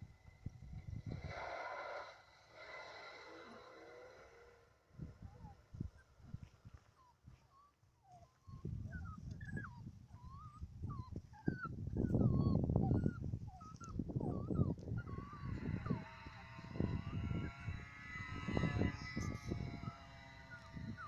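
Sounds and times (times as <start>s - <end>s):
puppies whimpering and squealing: 5.2s - 21.0s.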